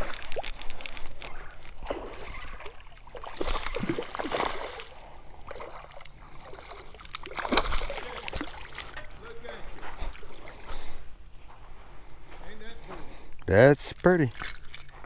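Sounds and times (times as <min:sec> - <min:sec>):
water splashing and sloshing: 0:00.0 - 0:11.9.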